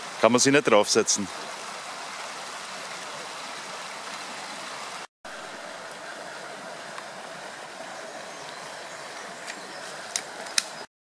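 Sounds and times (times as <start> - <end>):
creek water running: 0.0 - 10.9.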